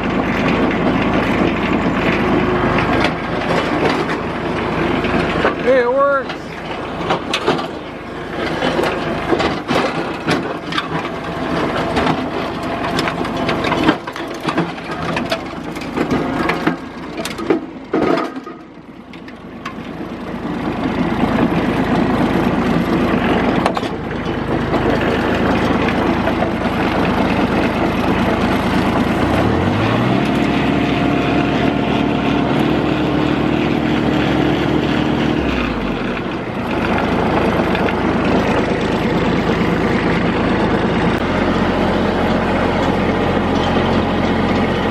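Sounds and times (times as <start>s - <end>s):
tractor engine running: 0.0s - 44.9s
clatter of knocks and clicks: 7.0s - 7.8s, 8.4s - 19.8s.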